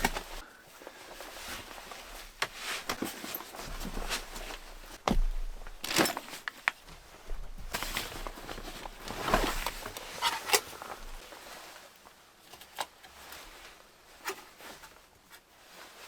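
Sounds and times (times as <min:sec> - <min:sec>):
handling rustling: 0:00.0 - 0:11.8.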